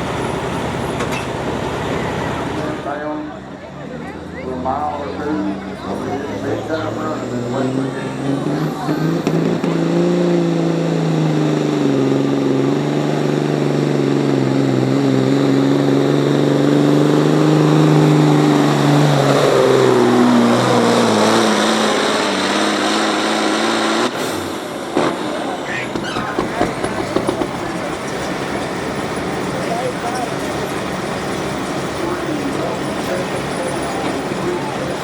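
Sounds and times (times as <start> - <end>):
engine running hard under load: 0.0 - 35.0
low rumble with knocks: 24.9 - 28.8.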